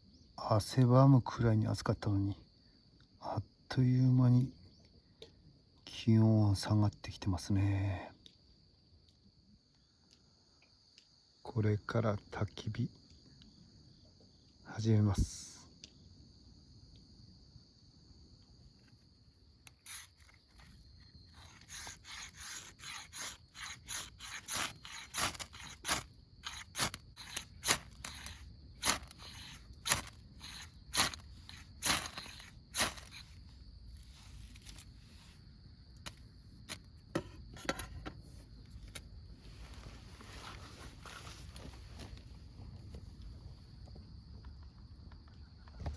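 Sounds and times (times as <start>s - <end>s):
crickets chirping: 0.0s - 45.9s
sharp scraping strokes: 19.7s - 35.4s.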